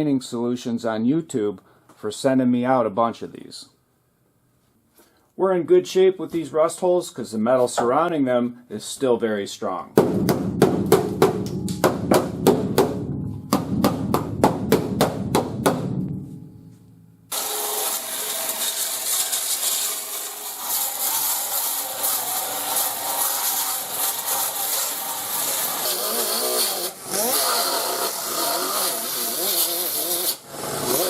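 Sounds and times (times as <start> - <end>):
power sander grinding metal: 17.3 - 31.0.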